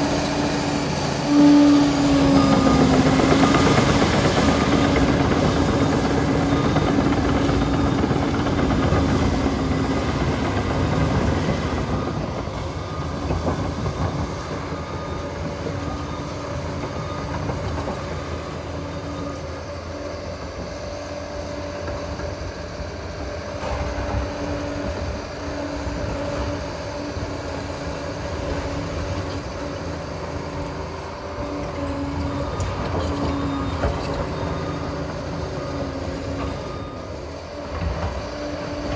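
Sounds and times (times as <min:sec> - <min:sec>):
steel tracks clattering: 0:00.0 - 0:19.6
diesel engine running: 0:00.0 - 0:38.9.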